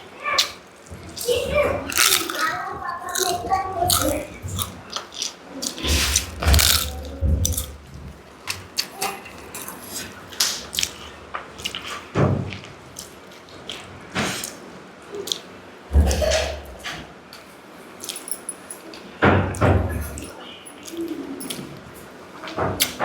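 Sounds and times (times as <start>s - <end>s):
wet chewing and smacking: 0.4s - 15.5s.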